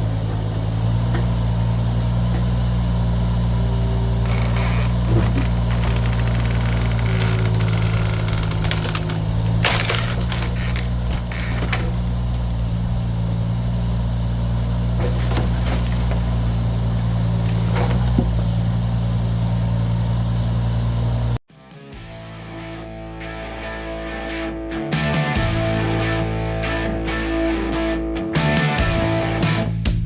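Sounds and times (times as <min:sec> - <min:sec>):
excavator diesel engine running: 0:00.0 - 0:21.4
wood cracking and splintering: 0:04.2 - 0:12.9, 0:14.9 - 0:16.5, 0:17.3 - 0:18.5.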